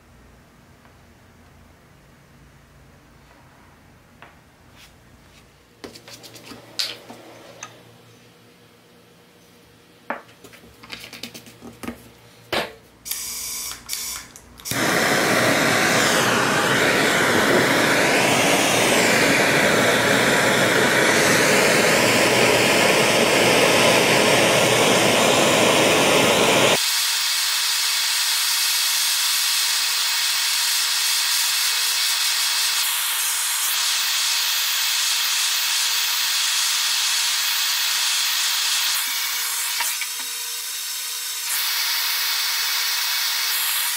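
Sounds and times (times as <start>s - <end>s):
gas torch flame hissing: 14.6s - 43.9s.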